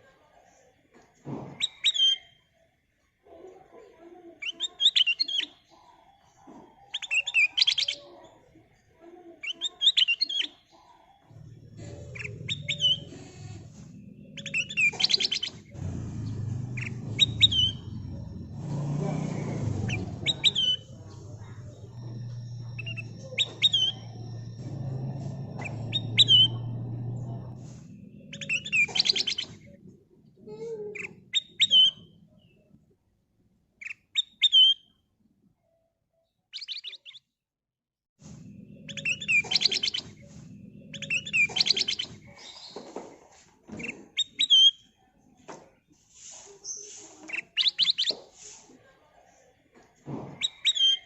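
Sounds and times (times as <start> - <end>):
rattling bird trills: 11.3 - 29.7
low steady hum: 11.3 - 30.1
bulbul whistled calls: 11.4 - 29.8, 38.6 - 42.8, 46.7 - 48.2.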